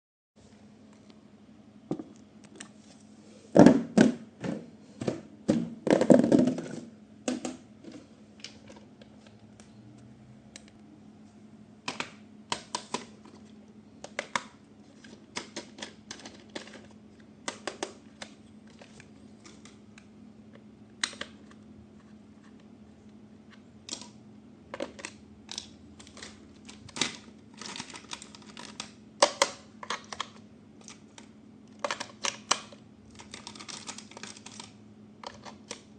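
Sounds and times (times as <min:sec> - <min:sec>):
faint steady hum: 0:00.4 - 0:35.9
plastic toys clicking and tapping: 0:14.0 - 0:19.8, 0:23.8 - 0:35.9.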